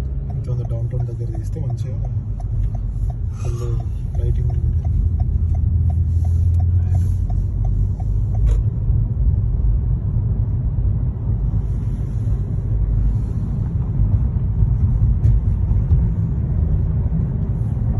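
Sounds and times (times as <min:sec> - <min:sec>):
fast regular ticking: 0:00.0 - 0:08.5
low vehicle rumble: 0:00.0 - 0:17.9.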